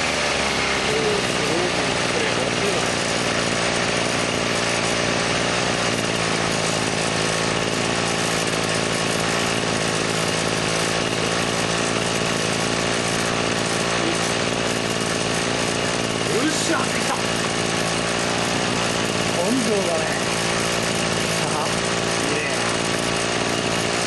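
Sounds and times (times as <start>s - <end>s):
brush cutter engine running: 0.0s - 24.0s.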